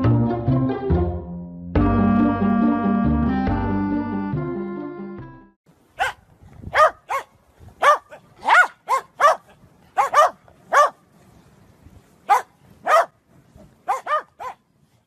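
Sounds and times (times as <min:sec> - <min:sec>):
dog barking high-pitched: 0:06.0 - 0:11.0, 0:12.3 - 0:13.2, 0:13.8 - 0:14.6.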